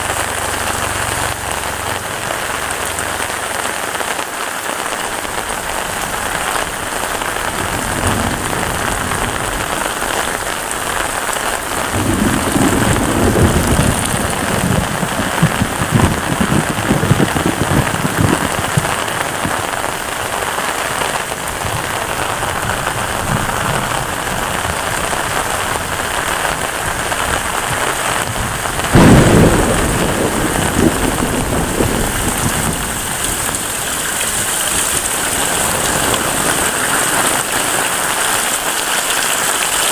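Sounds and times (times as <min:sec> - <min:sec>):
heavy rain falling: 0:00.0 - 0:39.9
thunder clap: 0:04.9 - 0:38.8
low rumble of thunder: 0:05.2 - 0:38.0.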